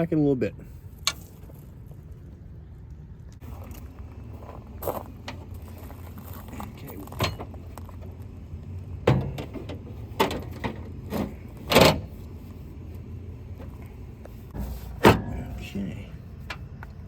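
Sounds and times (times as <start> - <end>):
steady low rumble: 0.0 - 17.0
tools knocking and clanking: 9.0 - 12.1.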